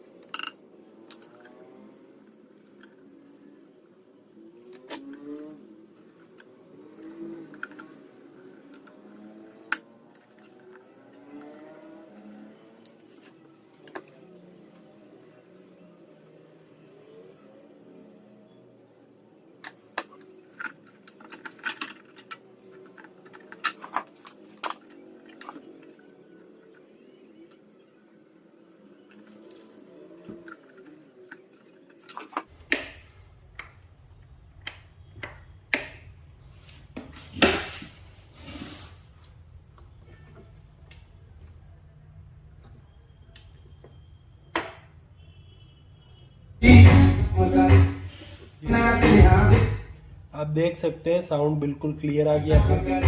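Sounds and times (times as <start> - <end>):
hand tools clicking and tapping: 19.6 - 25.6
faint wavering background sound: 24.2 - 32.2.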